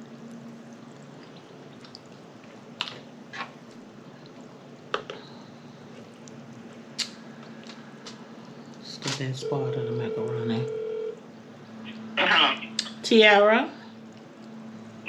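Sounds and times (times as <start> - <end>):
wet mouth chewing sounds: 0.1 - 4.8, 5.8 - 7.8.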